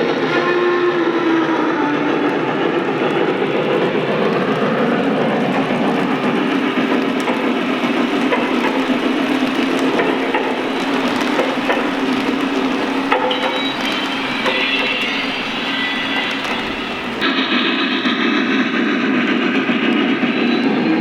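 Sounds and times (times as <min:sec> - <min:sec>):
model train wheels and motor rumbling: 0:03.1 - 0:17.9
rail joint clicks: 0:03.8 - 0:17.3.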